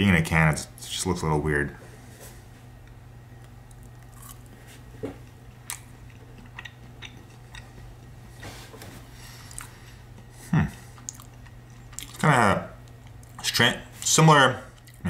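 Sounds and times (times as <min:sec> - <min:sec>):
steady low hum: 0:00.0 - 0:15.0
person chewing wet mouth clicks: 0:05.7 - 0:07.7, 0:11.0 - 0:12.2.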